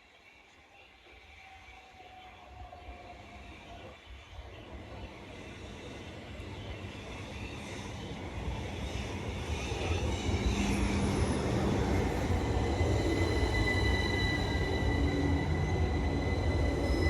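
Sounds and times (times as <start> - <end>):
train rumbling past: 4.3 - 17.0.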